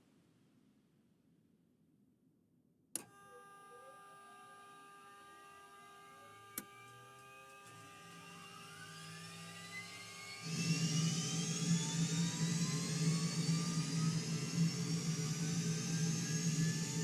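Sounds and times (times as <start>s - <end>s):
jet turbine whine: 5.8s - 17.0s
jet engine rush with low hum: 7.7s - 17.0s.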